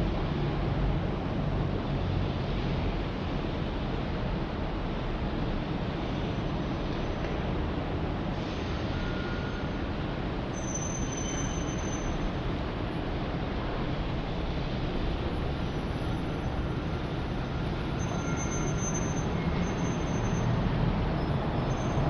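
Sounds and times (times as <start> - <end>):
city traffic rumble: 0.0 - 22.0
faint high squeals: 8.4 - 9.9, 10.5 - 12.4, 17.8 - 22.0.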